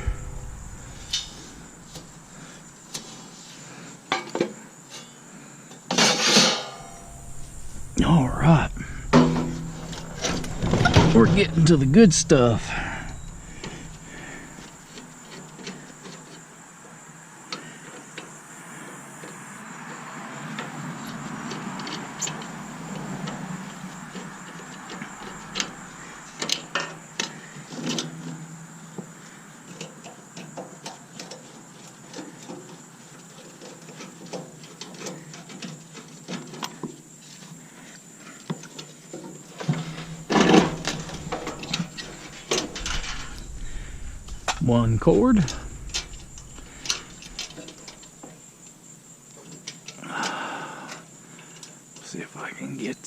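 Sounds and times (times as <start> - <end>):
faint high hiss: 0.0 - 3.9, 6.0 - 16.2, 39.6 - 49.4.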